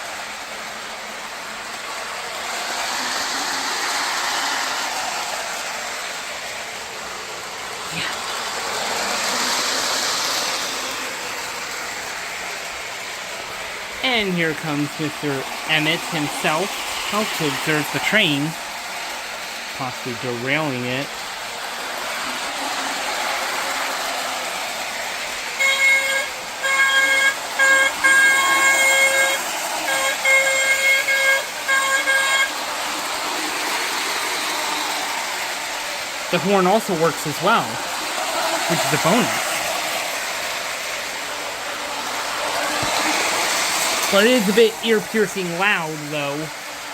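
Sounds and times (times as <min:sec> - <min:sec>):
model train whirring on rails: 0:00.0 - 0:46.9
loud model train horn blasts: 0:25.5 - 0:33.2.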